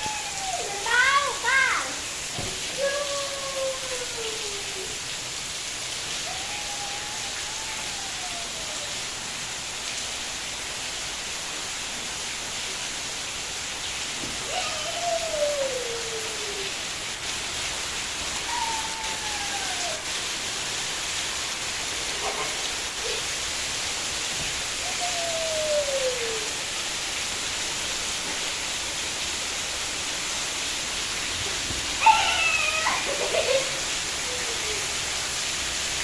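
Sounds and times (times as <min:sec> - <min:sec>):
heavy rain hissing: 0:00.0 - 0:36.0
drawn-out call falling in pitch: 0:32.0 - 0:33.0.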